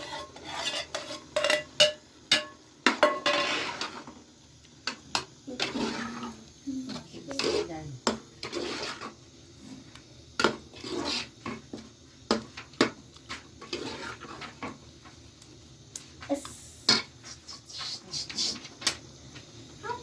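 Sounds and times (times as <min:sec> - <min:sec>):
scraping and rustling: 0:07.3 - 0:15.2.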